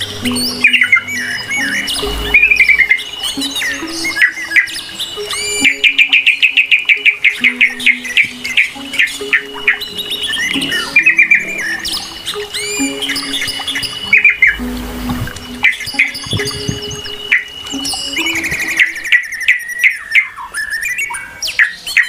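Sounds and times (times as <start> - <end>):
steady high whine: 0.0 - 5.9
birds chirping and calling: 0.0 - 22.0
soft background music: 0.0 - 22.0.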